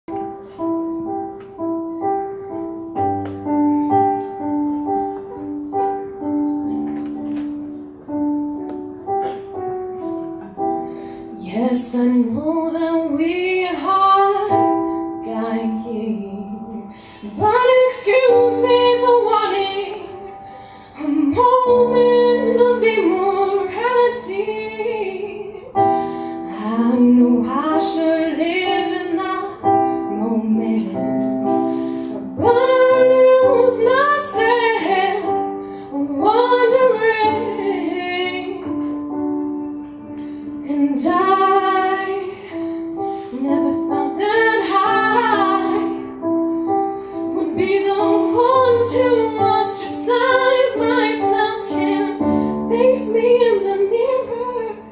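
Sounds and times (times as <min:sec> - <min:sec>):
instrumental accompaniment: 0:00.1 - 0:54.9
woman singing: 0:11.4 - 0:25.8, 0:26.5 - 0:31.6, 0:32.2 - 0:39.0, 0:40.5 - 0:46.2, 0:47.2 - 0:54.9.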